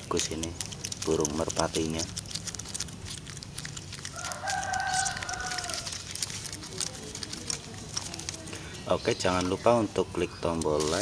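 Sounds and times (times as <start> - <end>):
pigeons pecking corn clicks: 0.0 - 11.0
rooster crowing: 4.0 - 6.1.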